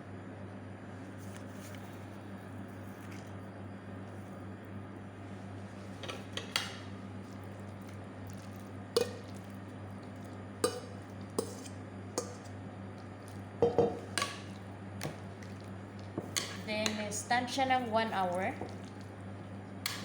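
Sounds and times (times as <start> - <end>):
wet squishing of marinade: 7.0 - 13.5, 17.8 - 20.0
clinks against bowl: 13.6 - 14.0.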